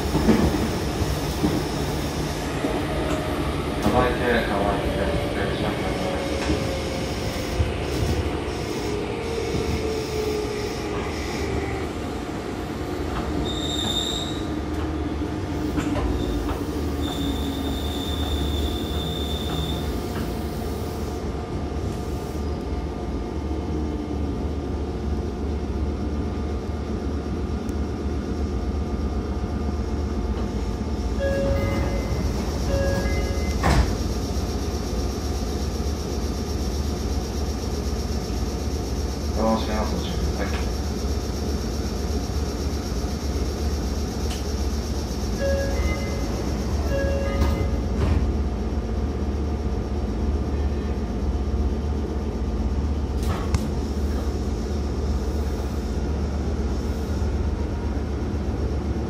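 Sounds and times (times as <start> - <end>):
train wheels rumbling on rail: 0.0 - 59.0
high wheel squeals: 13.4 - 14.6, 16.2 - 20.0.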